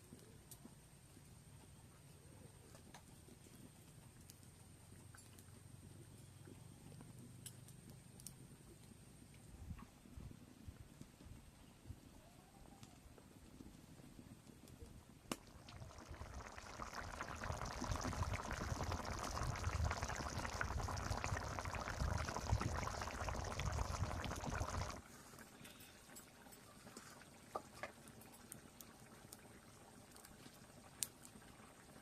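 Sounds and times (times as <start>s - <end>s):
liquid pouring with gurgle: 15.4s - 25.0s.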